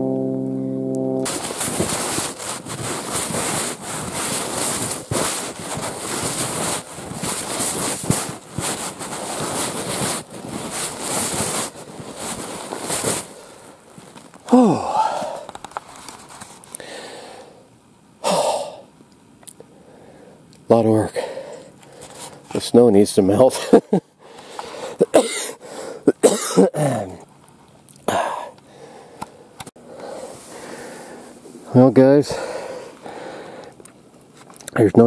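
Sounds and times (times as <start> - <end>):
footsteps in deep snow: 1.2 - 15.4
groaning exhale: 14.5 - 15.5
man breathing heavily: 14.5 - 15.5, 16.8 - 18.9, 19.7 - 20.5, 21.1 - 22.4, 24.2 - 26.1, 28.1 - 31.4, 32.3 - 33.8.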